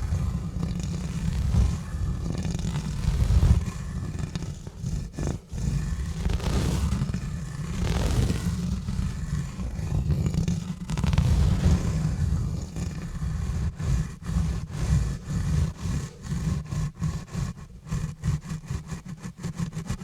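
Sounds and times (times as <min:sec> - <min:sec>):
gloves rubbing on microphone: 0:00.0 - 0:20.0.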